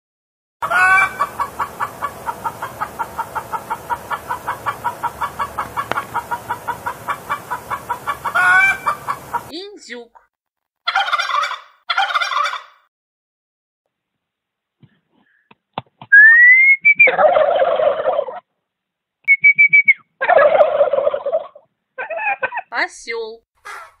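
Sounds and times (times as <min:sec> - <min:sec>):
turkeys gobbling: 0:00.6 - 0:09.5, 0:10.8 - 0:12.8, 0:16.8 - 0:18.4, 0:19.5 - 0:22.7
rising whistle: 0:16.1 - 0:17.2, 0:19.3 - 0:20.0.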